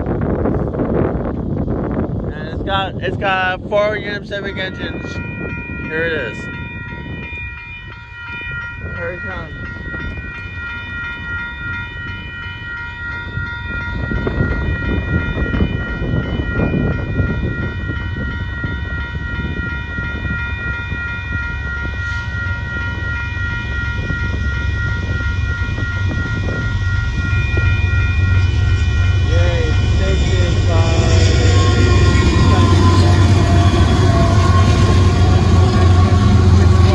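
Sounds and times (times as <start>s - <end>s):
crossing warning bell ringing: 0.0s - 36.9s
train rumble: 0.0s - 36.9s.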